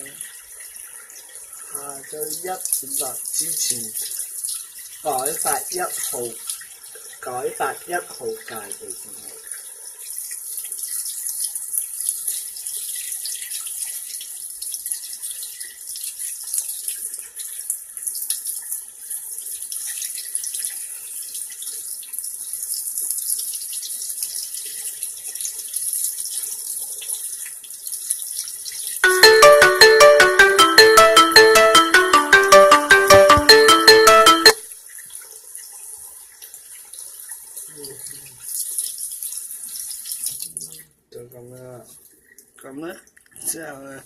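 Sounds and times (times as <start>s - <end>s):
electronic jingle: 29.0s - 34.6s.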